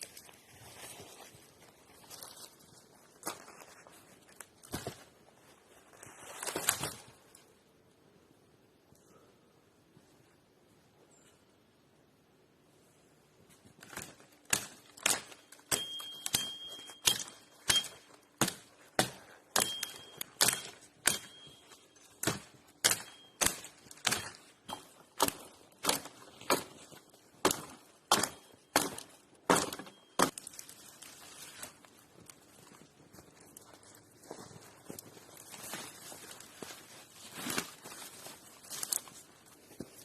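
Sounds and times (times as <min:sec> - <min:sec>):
sharp knocks with faint ringing: 0:15.1 - 0:25.0.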